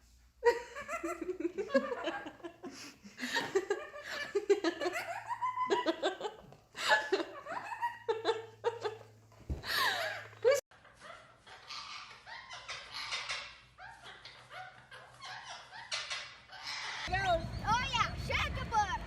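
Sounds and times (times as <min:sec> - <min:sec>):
people laughing and giggling: 0:00.4 - 0:11.3.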